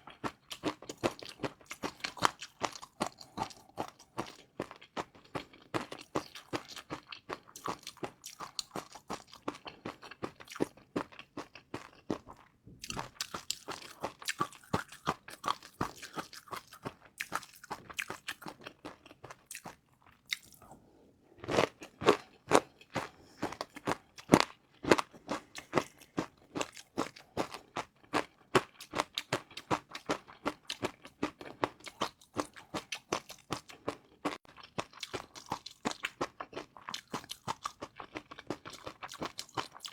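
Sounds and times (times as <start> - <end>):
person chewing crunchy noodles: 0.0 - 39.9.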